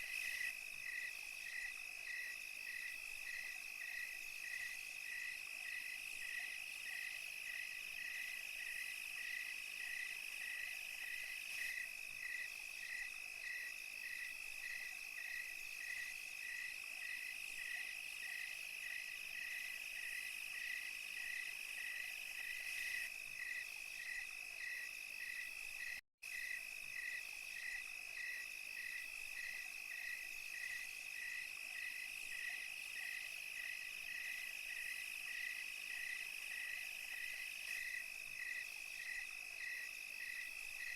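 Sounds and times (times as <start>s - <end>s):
cricket chirping: 0.0s - 40.9s
insect trill: 0.0s - 40.9s.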